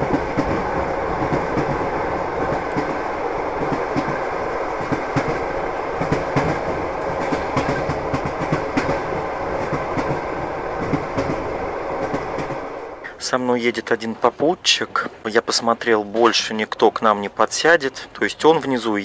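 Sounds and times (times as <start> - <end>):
wheels clattering over track: 0.0 - 12.8
train rumbling on rails: 0.0 - 18.9.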